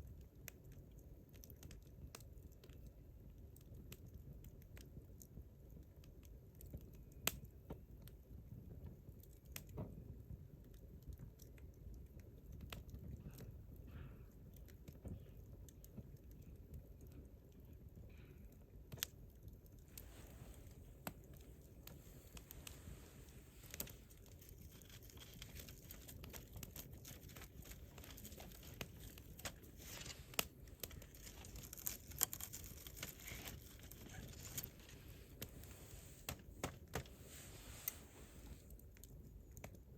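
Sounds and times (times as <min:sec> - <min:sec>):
campfire crackling and popping: 0:00.0 - 0:38.0, 0:38.6 - 0:39.9
faint low rumble: 0:12.0 - 0:39.9.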